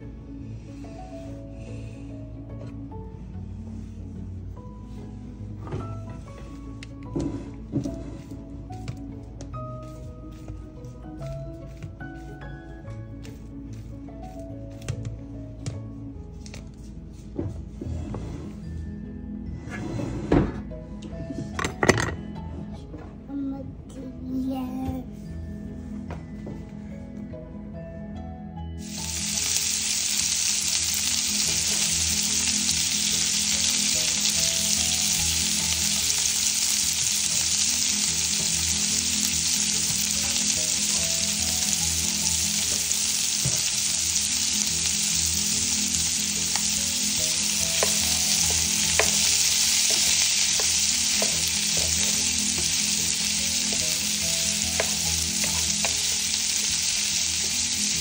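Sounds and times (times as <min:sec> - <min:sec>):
sausage sizzling in frying pan: 0:28.8 - 0:58.0
wooden spatula stirring in pan: 0:28.8 - 0:58.0.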